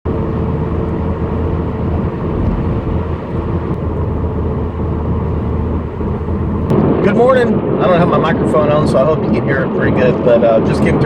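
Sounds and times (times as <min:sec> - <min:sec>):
car cabin road noise: 0:00.0 - 0:06.7.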